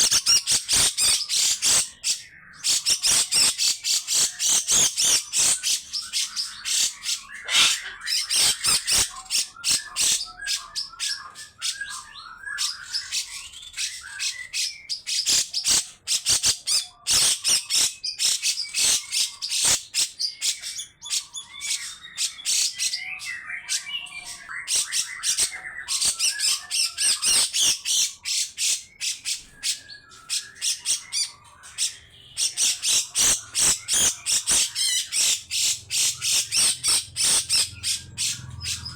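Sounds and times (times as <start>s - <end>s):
bulbul calling: 0.0s - 11.0s.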